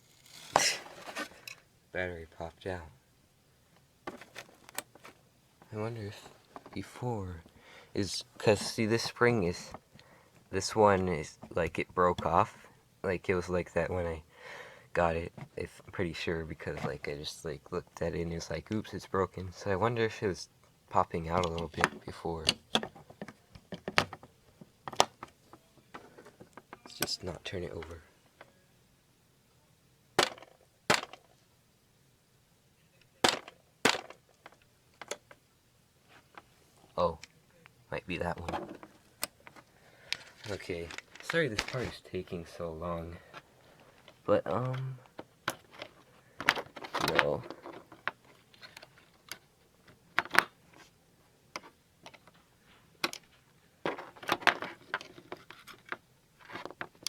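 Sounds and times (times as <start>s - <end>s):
clicks and scrapes of small parts: 0.0s - 1.7s, 4.1s - 5.2s, 21.3s - 24.3s, 33.2s - 35.4s, 38.4s - 42.0s, 43.3s - 52.4s, 53.0s - 57.0s
hard plastic clacks: 21.3s - 28.5s, 33.2s - 35.4s.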